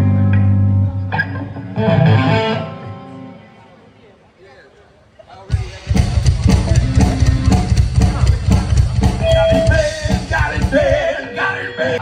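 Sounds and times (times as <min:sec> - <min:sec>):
live rock band playing: 0:00.0 - 0:03.6, 0:05.5 - 0:12.0
rapid low drum hits: 0:05.5 - 0:11.1
person singing: 0:08.4 - 0:12.0.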